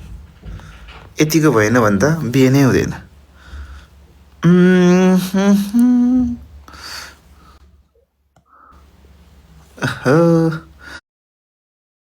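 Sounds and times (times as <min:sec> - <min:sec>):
person humming: 0:04.4 - 0:07.2, 0:09.8 - 0:10.9.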